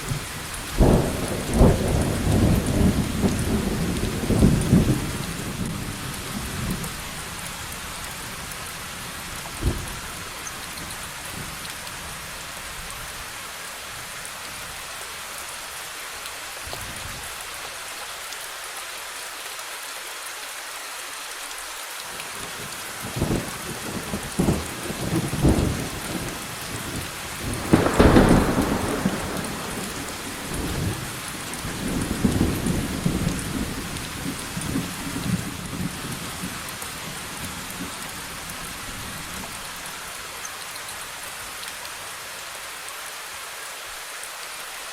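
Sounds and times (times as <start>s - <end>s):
steady rain falling: 0.0s - 44.9s
thunder rumbling and clapping: 26.9s - 36.5s.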